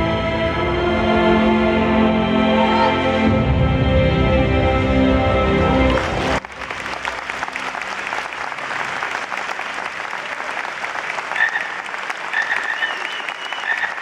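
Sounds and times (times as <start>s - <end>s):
music: 0.0s - 8.2s
arena audience applauding: 5.6s - 14.0s.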